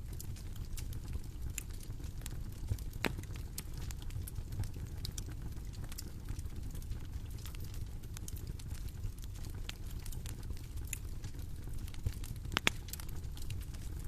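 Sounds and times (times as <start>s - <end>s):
bonfire crackling: 0.0s - 14.0s.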